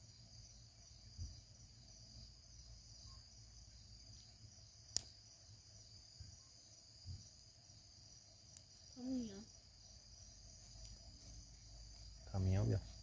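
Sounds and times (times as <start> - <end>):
crickets trilling: 0.0 - 13.0
sharp snap: 4.9 - 5.2.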